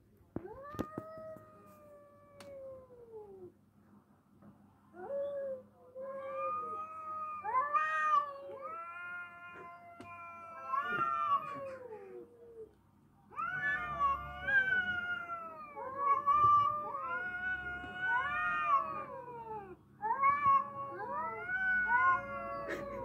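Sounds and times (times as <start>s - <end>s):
cats yowling: 5.0s - 23.0s.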